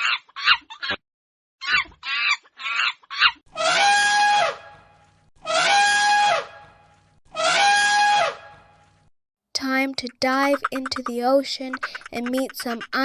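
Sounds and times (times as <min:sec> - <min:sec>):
loud screeching animal calls: 0:01.6 - 0:04.8, 0:05.4 - 0:06.6, 0:07.3 - 0:08.5.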